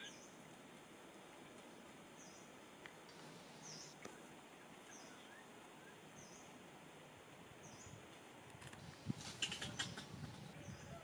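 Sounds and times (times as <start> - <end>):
small bird chirping: 3.1 - 4.2, 8.8 - 11.0.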